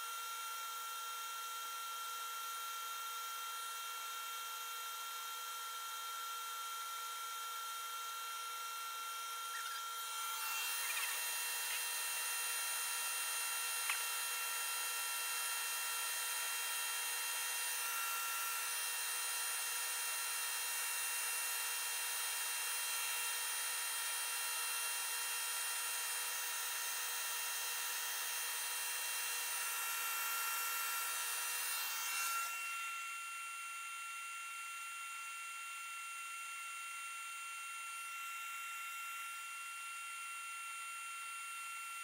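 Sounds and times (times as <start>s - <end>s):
shop vacuum whining: 2.0s - 34.6s
cordless drill spinning: 9.3s - 15.4s.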